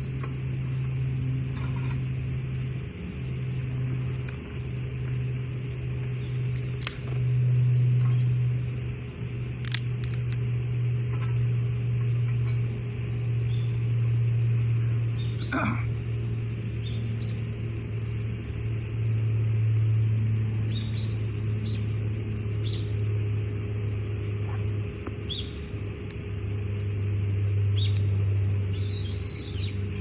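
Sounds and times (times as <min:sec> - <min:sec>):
insects trilling: 0:00.0 - 0:30.0
steady low rumble: 0:00.0 - 0:30.0
light clicks: 0:06.5 - 0:07.2, 0:09.6 - 0:10.5.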